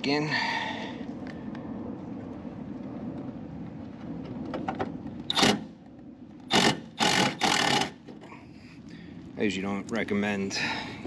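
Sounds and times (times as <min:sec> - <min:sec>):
cordless drill driving screws: 0:05.3 - 0:05.6, 0:06.5 - 0:08.0.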